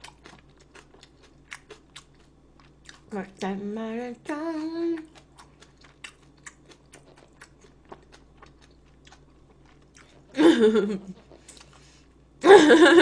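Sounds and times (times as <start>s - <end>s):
crunchy chewing: 0.0s - 3.1s, 5.0s - 10.4s, 11.1s - 12.0s.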